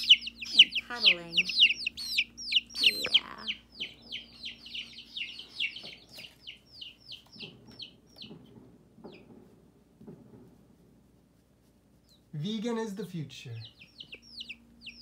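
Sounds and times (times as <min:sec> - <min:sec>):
baby chicks peeping: 0:00.0 - 0:10.9, 0:11.9 - 0:15.0.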